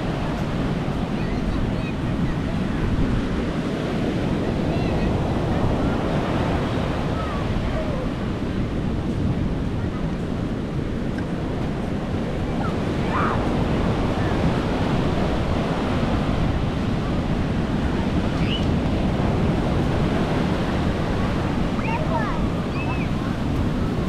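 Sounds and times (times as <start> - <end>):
sea waves washing onto beach: 0.0 - 24.0
wind buffeting microphone: 0.0 - 24.0.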